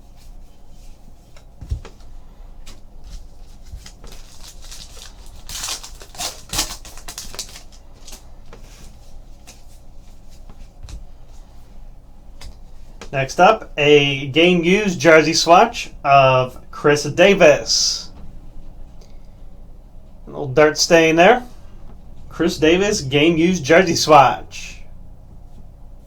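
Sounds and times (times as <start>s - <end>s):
cards rustling and clicking: 1.3s - 11.0s.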